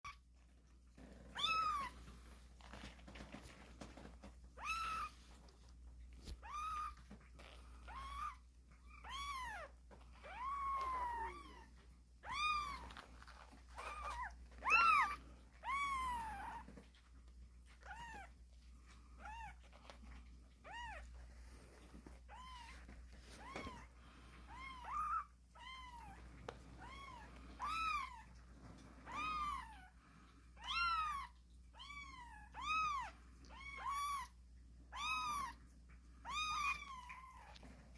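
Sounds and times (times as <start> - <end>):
kittens meowing: 1.3 - 2.0, 4.6 - 5.2, 6.2 - 16.7, 23.4 - 26.2, 26.8 - 28.3, 30.6 - 35.6, 36.2 - 37.7.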